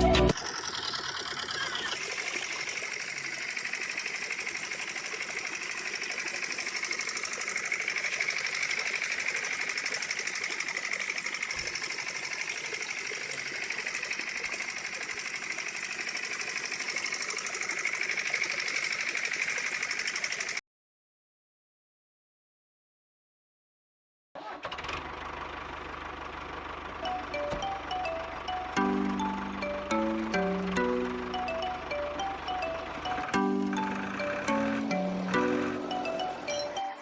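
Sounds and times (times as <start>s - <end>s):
small motor buzzing with rattle: 0.4s - 20.6s.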